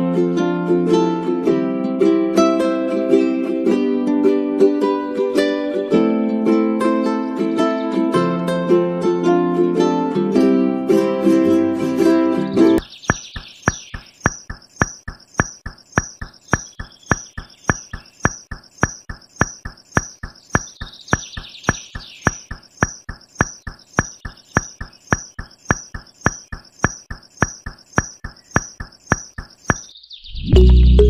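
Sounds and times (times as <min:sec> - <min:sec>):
sharp clicking: 0:12.8 - 0:29.9.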